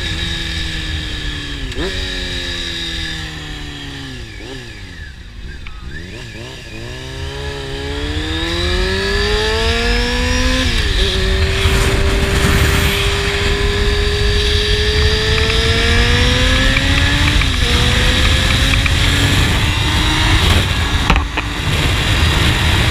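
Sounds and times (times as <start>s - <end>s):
motorcycle accelerating through gears: 0.0s - 22.9s
wind rumble: 6.9s - 22.9s.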